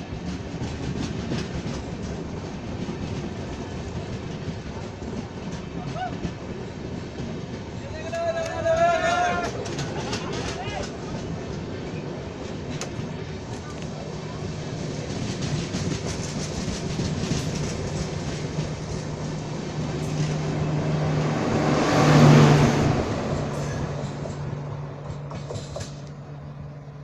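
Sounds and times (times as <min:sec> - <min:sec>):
train wheels clattering over joints: 0:00.0 - 0:20.9, 0:23.1 - 0:26.2.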